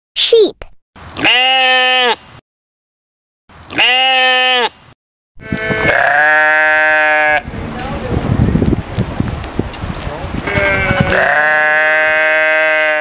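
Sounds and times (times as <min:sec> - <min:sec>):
sheep bleating: 0:01.2 - 0:02.2, 0:03.7 - 0:04.8, 0:05.4 - 0:07.5, 0:10.4 - 0:13.0.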